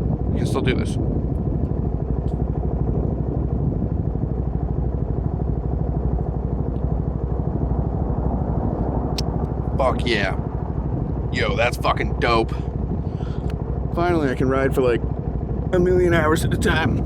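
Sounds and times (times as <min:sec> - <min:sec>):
motorcycle engine idling: 0:09.3 - 0:17.0.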